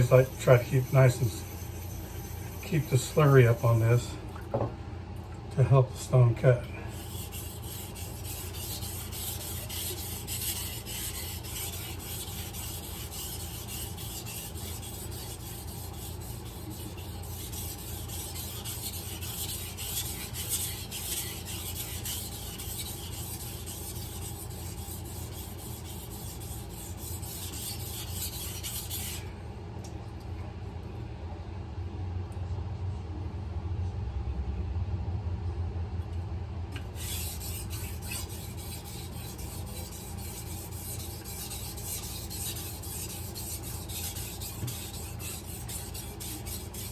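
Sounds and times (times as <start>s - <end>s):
knife scraping on whetstone: 0.0s - 4.1s, 6.9s - 29.2s, 36.8s - 46.9s
low steady hum: 0.0s - 46.9s.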